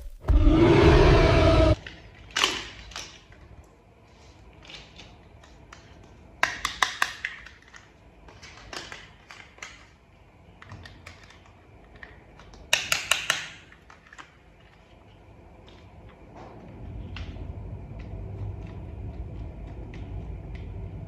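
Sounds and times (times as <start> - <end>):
plastic toy parts clicking: 2.1 - 3.4, 4.6 - 10.0, 10.6 - 14.7.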